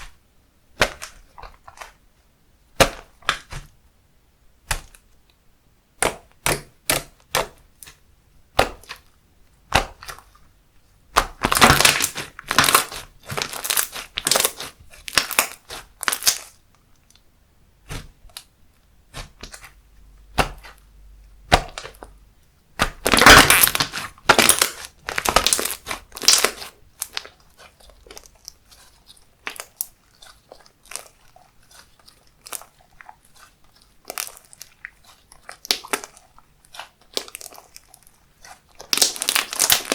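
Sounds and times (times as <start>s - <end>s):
slime clicking and crackling: 11.1s - 17.2s, 22.8s - 39.9s.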